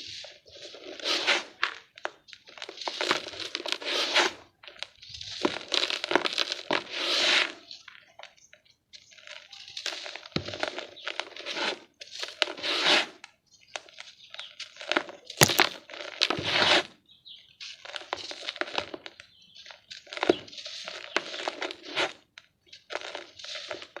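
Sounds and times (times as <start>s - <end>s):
dry dirt crumbling and crunching: 0.0s - 24.0s.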